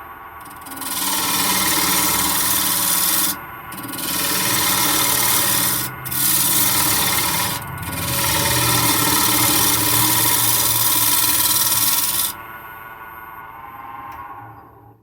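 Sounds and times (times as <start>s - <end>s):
lathe tool scraping wood: 0.4s - 12.4s
wood lathe hum: 0.4s - 12.4s.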